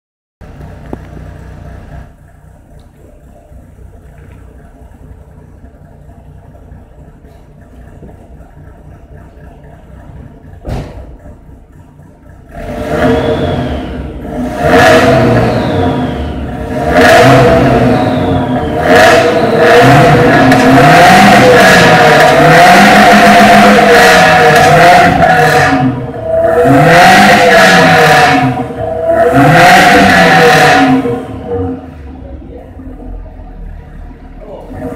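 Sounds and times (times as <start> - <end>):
car engine idling and revving: 0.4 - 34.9
short thump: 10.6 - 11.2.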